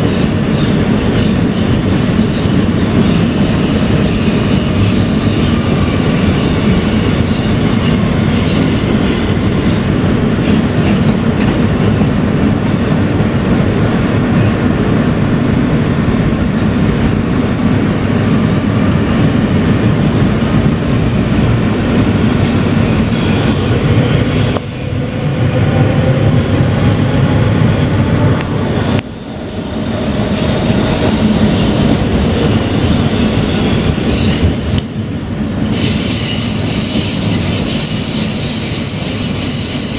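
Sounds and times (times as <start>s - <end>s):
train wheel and track noise: 0.0s - 39.9s.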